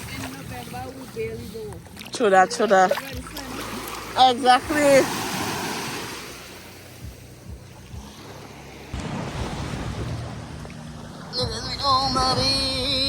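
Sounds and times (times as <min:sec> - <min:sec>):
sea waves washing on beach: 0:00.0 - 0:12.8
wind buffeting microphone: 0:08.9 - 0:12.9.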